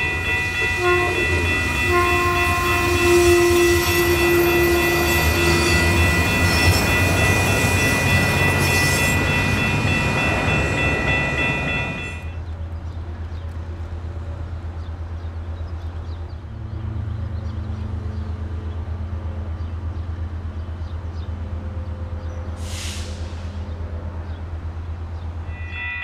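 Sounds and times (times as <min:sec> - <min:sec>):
high-pitched tones: 0:00.0 - 0:12.4, 0:25.5 - 0:26.0
diesel train passing: 0:00.0 - 0:26.0.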